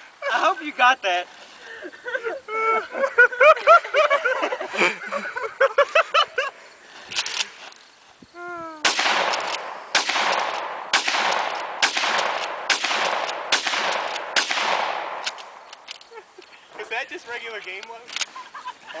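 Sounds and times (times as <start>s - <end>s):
shotgun blasts with echo: 8.8s - 15.6s.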